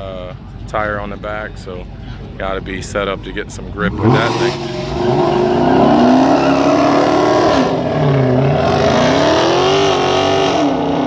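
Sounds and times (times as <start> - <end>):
car engine revving hard: 3.8 - 11.0.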